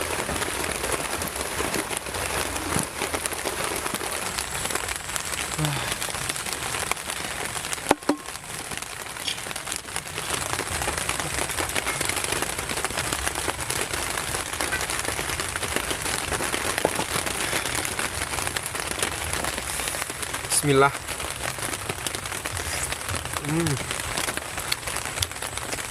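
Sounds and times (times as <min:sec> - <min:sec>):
rain on a plastic tarp: 0:00.0 - 0:25.9
sharp knock: 0:07.9 - 0:08.3.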